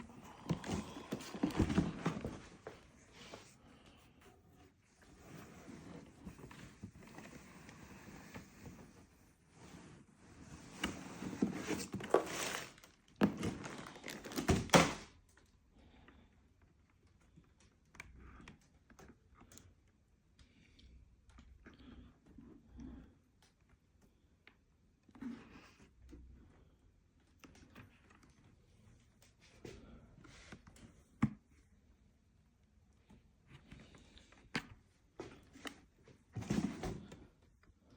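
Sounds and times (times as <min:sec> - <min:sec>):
soft handling rustles: 0:00.0 - 0:14.4
packaging rustling: 0:00.1 - 0:03.5, 0:11.2 - 0:15.0.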